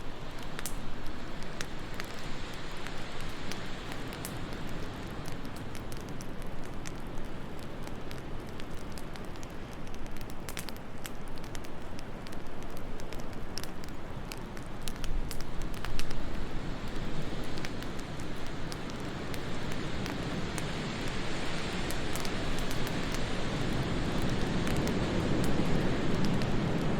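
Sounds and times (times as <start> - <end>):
wood fire crackling and popping: 0.0 - 26.9.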